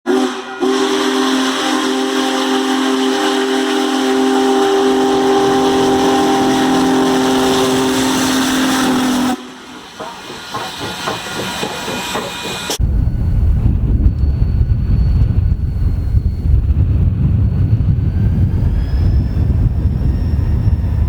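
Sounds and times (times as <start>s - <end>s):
locomotive air horn blast: 0.0s - 9.7s
train rumble: 0.1s - 21.0s.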